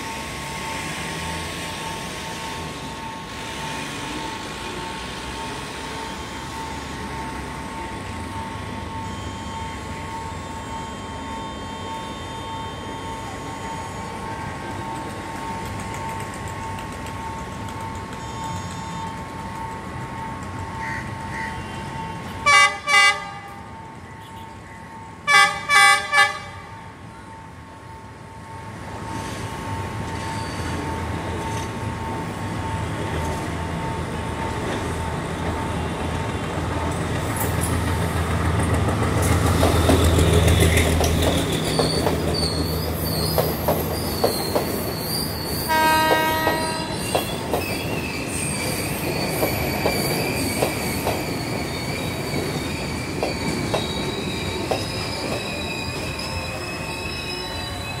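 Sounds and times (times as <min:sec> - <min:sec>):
train engine drone: 0:00.0 - 0:58.0
train horn blast: 0:22.4 - 0:23.7, 0:25.3 - 0:26.8, 0:45.7 - 0:47.2
high wheel squeal: 0:29.0 - 0:34.2, 0:39.2 - 0:58.0
wheels clicking over rail joints: 0:34.3 - 0:45.0.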